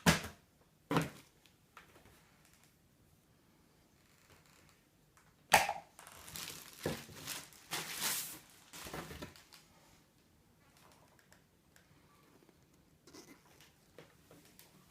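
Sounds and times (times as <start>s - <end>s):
packaging crinkling and rustling: 6.0s - 9.7s.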